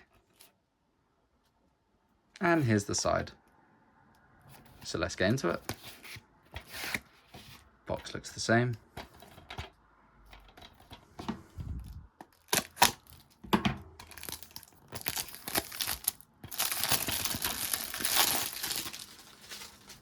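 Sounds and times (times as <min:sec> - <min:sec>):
plastic film crinkling and tearing: 0:12.3 - 0:13.3, 0:14.0 - 0:20.0.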